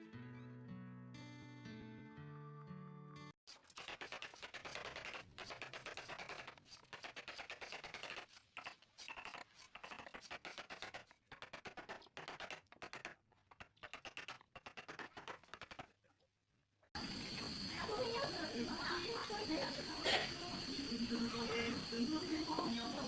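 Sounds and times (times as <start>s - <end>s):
hand tool scraping wood: 3.7s - 15.9s.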